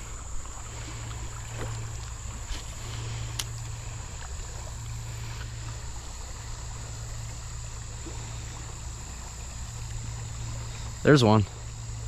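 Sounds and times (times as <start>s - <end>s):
wind on microphone: 0.0s - 8.1s
water rumble: 0.0s - 12.0s.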